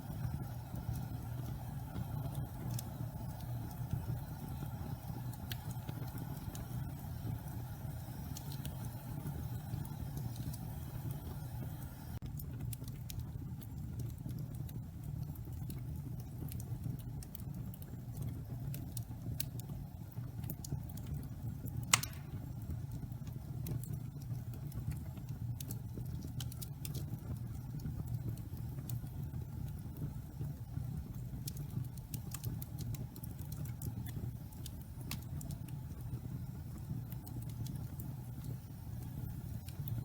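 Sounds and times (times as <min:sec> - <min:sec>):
fire crackling: 0:00.0 - 0:40.0
fire rumbling in fireplace: 0:00.0 - 0:40.0
sharp pop of burning wood: 0:21.9 - 0:22.8.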